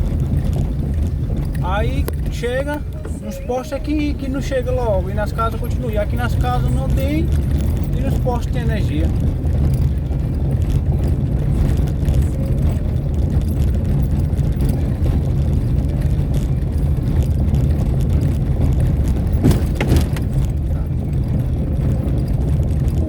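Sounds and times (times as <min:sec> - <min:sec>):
vehicle engine and road rumble: 0:00.0 - 0:23.0
short knocks: 0:19.2 - 0:20.6.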